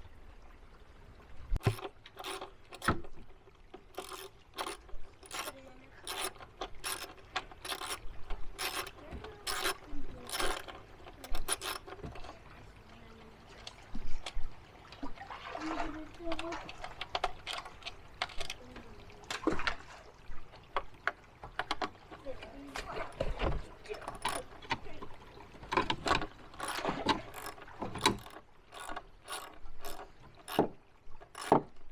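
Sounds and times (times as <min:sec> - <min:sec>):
hand ratchet clicking: 0:04.0 - 0:05.5, 0:06.1 - 0:08.0, 0:08.6 - 0:12.0, 0:31.4 - 0:31.6.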